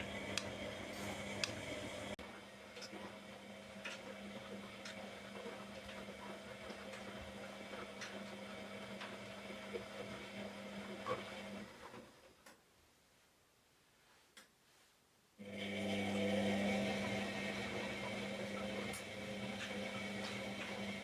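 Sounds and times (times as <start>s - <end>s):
electric appliance humming: 0.0s - 12.1s, 15.4s - 21.0s.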